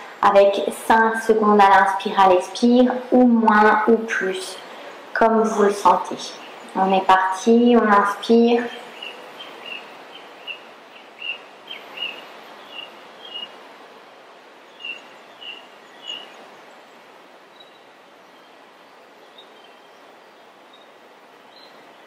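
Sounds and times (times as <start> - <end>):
faint steady hiss: 0.0 - 22.0
bird chirping: 8.6 - 13.6, 14.7 - 18.6.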